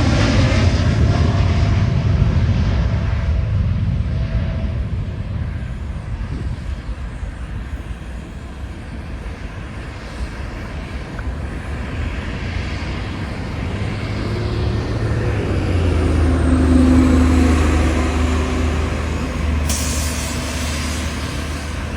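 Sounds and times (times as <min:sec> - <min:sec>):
jet engine rumble: 0:00.0 - 0:21.9
road traffic noise: 0:00.0 - 0:21.9.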